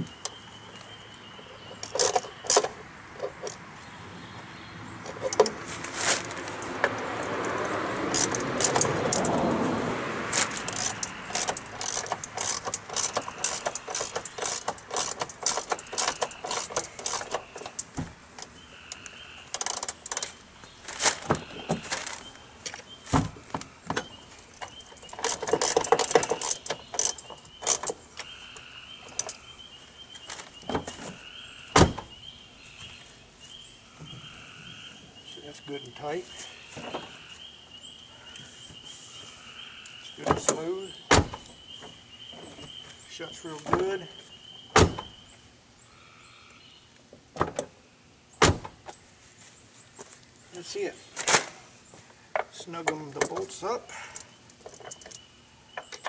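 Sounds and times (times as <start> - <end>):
tools clinking on metal: 1.8 - 3.6, 10.5 - 18.5, 24.6 - 28.0
rustling: 5.1 - 6.8, 19.6 - 28.2.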